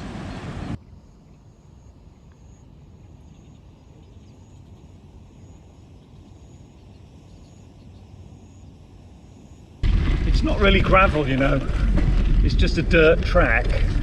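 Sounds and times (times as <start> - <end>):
bicycle tyres rumbling on dirt: 9.8 - 14.0
wind on microphone: 9.8 - 14.0.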